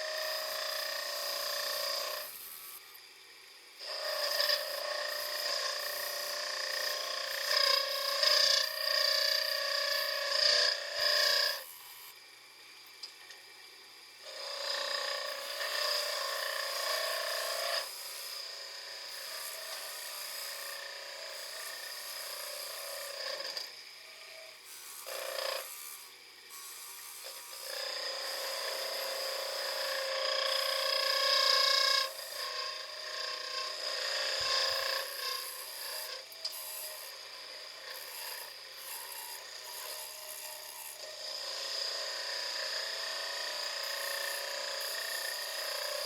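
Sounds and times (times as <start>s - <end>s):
wood lathe whining: 0.0s - 12.3s, 13.0s - 46.0s
tool scraping wood: 3.8s - 11.6s.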